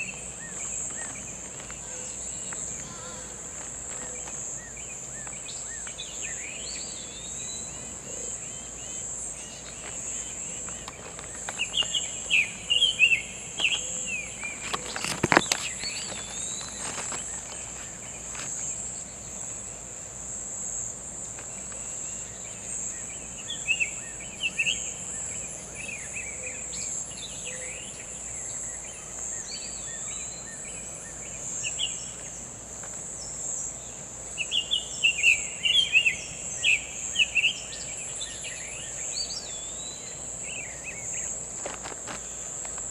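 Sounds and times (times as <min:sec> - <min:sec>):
bird singing whistled notes: 0:11.5 - 0:14.8, 0:34.4 - 0:41.3.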